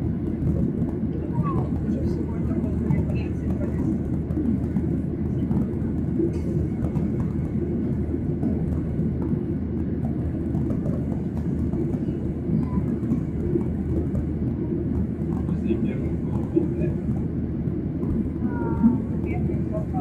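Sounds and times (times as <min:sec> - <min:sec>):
jet engine cabin rumble: 0:00.0 - 0:20.0.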